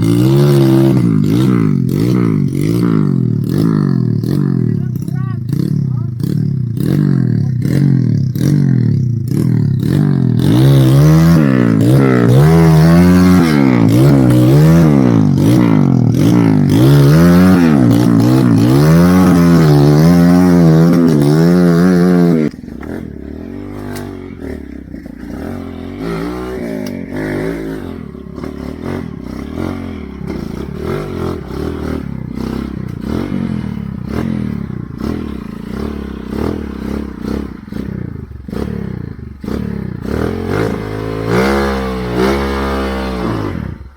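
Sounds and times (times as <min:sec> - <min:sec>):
motorcycle engine revving: 0:00.0 - 0:43.9
clatter and scraping: 0:22.4 - 0:29.6.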